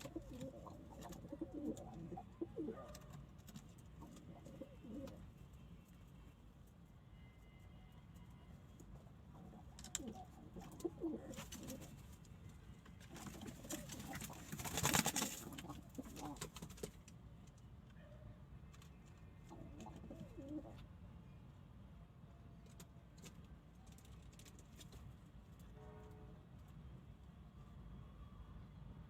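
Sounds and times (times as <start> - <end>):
pigeons cooing: 0.0 - 3.1, 4.0 - 5.3, 9.3 - 12.0, 13.1 - 16.6, 19.5 - 20.8.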